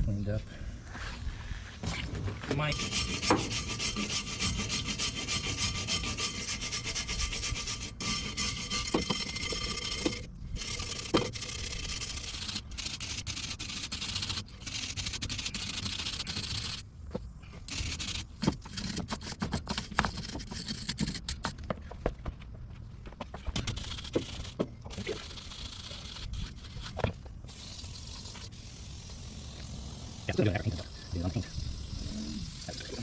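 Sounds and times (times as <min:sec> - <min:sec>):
brush scrubbing sheet metal: 0:02.7 - 0:16.8, 0:17.7 - 0:21.5, 0:23.6 - 0:28.7.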